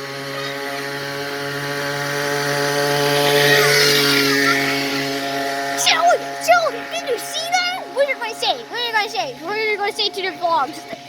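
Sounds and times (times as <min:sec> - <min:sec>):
small motorcycle engine buzzing: 0:00.0 - 0:11.0.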